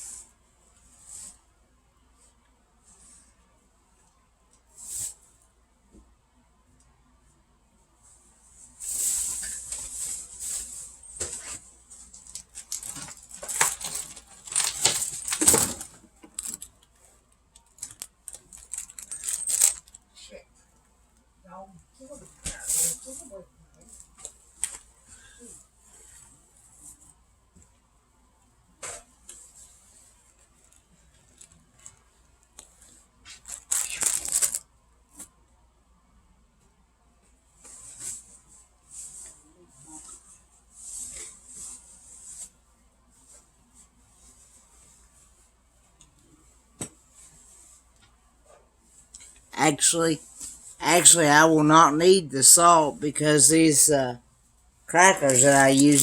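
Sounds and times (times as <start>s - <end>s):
crinkling crackly rustle: 8.9s - 20.1s, 29.2s - 35.3s, 54.9s - 56.0s
packaging rustling and crinkling: 12.1s - 16.8s, 17.8s - 20.0s, 33.3s - 34.6s, 55.2s - 56.0s.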